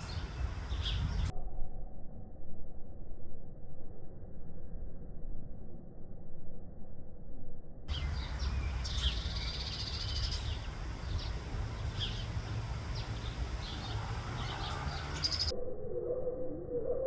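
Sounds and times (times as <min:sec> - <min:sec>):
small birds chirping: 0:00.0 - 0:01.3, 0:07.9 - 0:15.5
low background rumble: 0:07.9 - 0:15.5.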